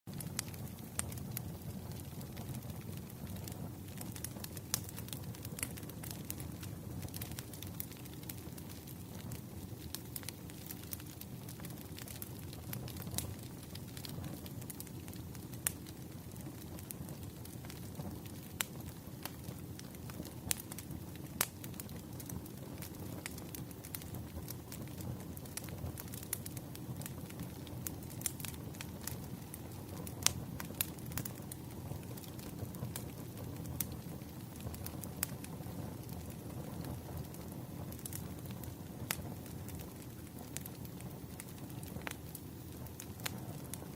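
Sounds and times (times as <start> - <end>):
fire pops and snaps: 0.1 - 43.9
wood fire crackling: 0.1 - 43.9.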